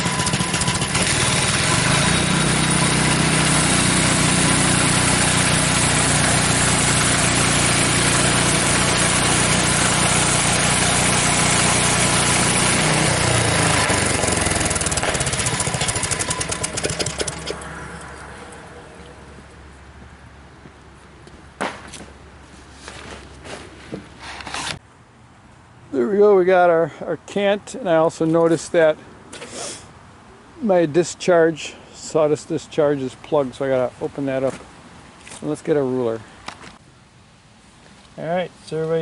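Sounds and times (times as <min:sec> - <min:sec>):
band saw cutting log: 0:00.0 - 0:19.2
sawmill engine running: 0:00.0 - 0:19.6.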